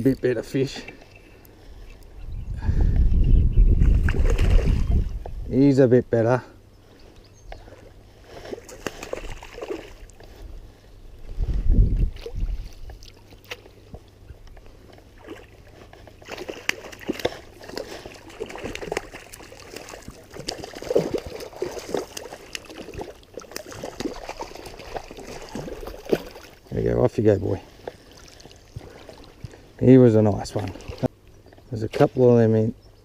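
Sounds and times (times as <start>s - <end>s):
water sloshing and splashing: 3.8s - 5.4s, 7.6s - 31.7s.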